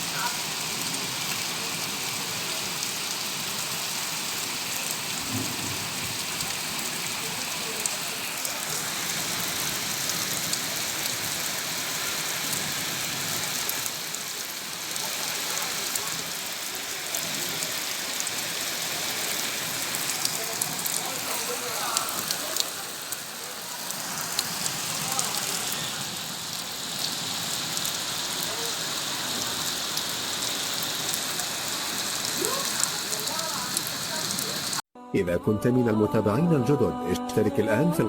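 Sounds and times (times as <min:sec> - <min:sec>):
heavy rain falling: 0:00.0 - 0:34.8.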